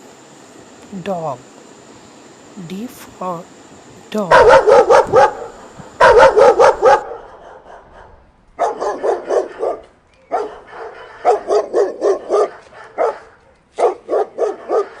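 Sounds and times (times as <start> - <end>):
dog barking: 4.3 - 15.0.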